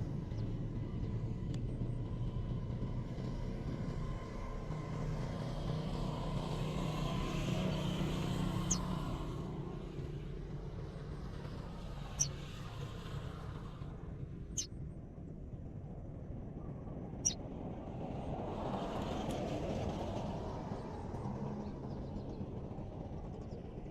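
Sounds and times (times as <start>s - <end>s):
passing vehicle rumble: 3.5s - 14.7s.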